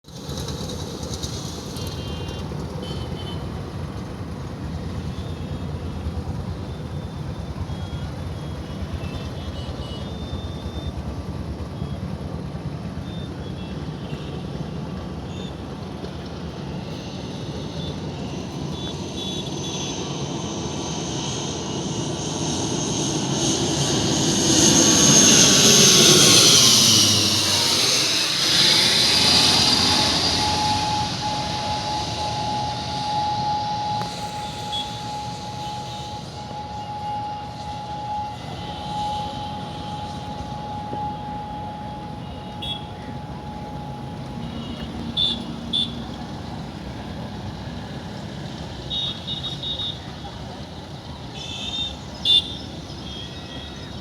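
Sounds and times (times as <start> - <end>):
airliner engines droning: 0.1 - 54.0
high whine falling in pitch: 16.5 - 46.0.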